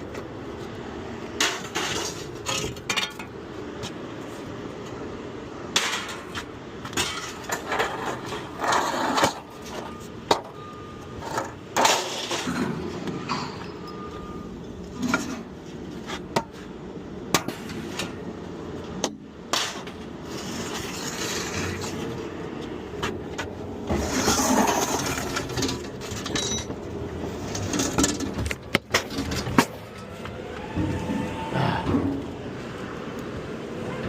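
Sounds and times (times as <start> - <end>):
scrap metal clanking: 1.4 - 3.3, 5.7 - 10.6, 23.9 - 26.8, 27.4 - 30.2.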